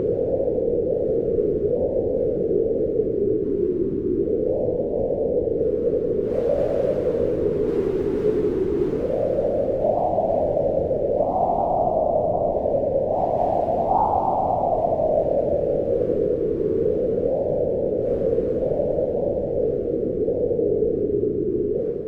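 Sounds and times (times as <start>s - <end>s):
wind gusting: 5.6s - 21.1s.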